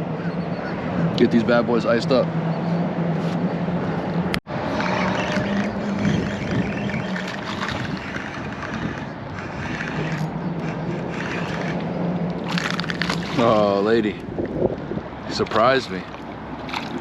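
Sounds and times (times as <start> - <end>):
electric motor humming: 4.5 - 13.5.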